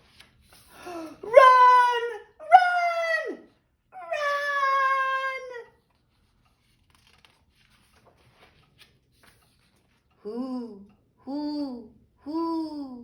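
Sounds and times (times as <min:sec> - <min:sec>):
woman shouting: 0:01.2 - 0:05.7.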